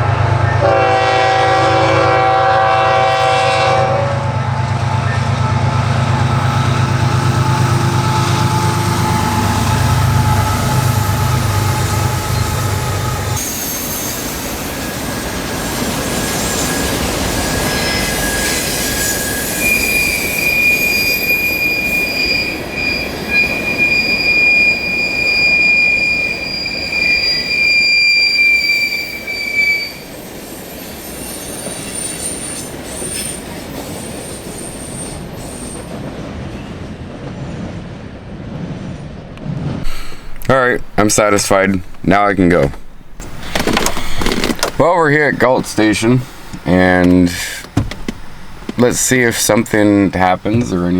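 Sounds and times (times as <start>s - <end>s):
locomotive engine drone: 0.0s - 21.2s, 39.0s - 50.9s
train cars rolling past: 0.0s - 50.9s
high-pitched wheel squeal: 6.2s - 35.8s.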